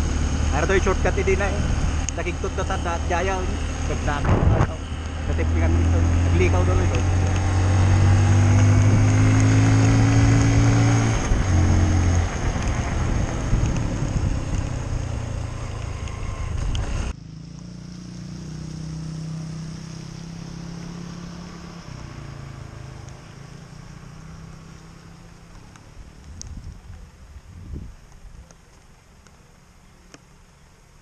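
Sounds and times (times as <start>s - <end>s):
rushing wind: 0.0s - 17.2s, 26.0s - 28.5s
motorcycle engine running: 0.0s - 28.5s
tyre noise on wet road: 0.0s - 31.0s.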